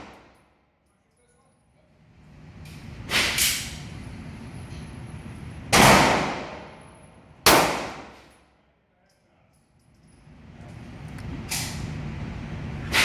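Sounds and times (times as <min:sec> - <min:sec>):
pistol shots with echo: 0:05.8 - 0:06.8, 0:07.5 - 0:08.2.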